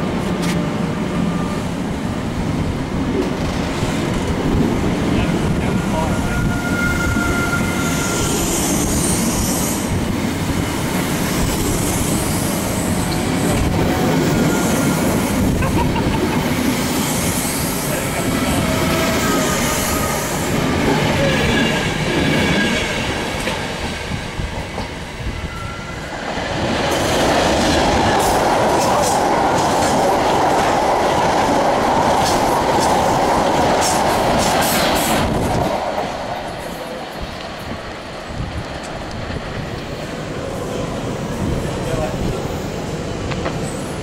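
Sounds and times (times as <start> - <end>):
train wheel and track noise: 0.0 - 44.0
faint high wheel squeals: 6.0 - 9.2, 25.4 - 26.1.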